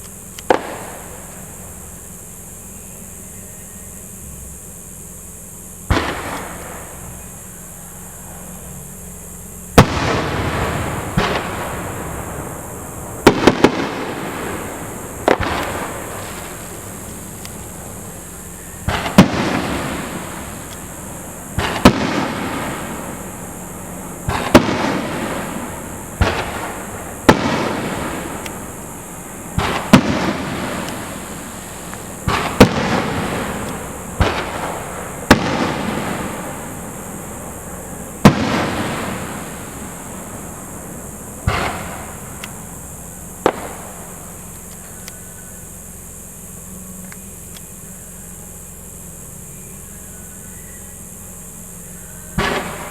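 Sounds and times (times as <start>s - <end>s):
firework shells bursting: 0.0s - 2.5s, 5.8s - 47.7s, 51.0s - 52.9s
firework crackle: 0.0s - 3.1s, 4.6s - 50.0s, 51.0s - 52.9s
firework launch thump: 0.5s - 1.5s, 5.9s - 7.2s, 9.8s - 23.2s, 24.0s - 37.5s, 38.2s - 40.7s, 41.4s - 42.7s, 43.3s - 44.4s, 52.4s - 52.9s.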